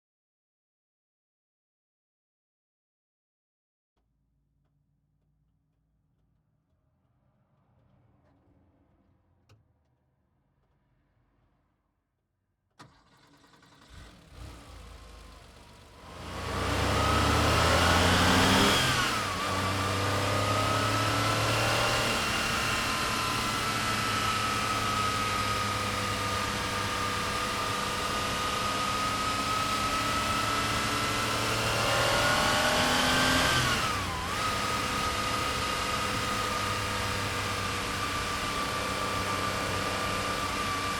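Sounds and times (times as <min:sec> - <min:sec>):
engine cranking on starter: 0:12.8 - 0:16.0
car engine revving and idling: 0:12.9 - 0:40.9.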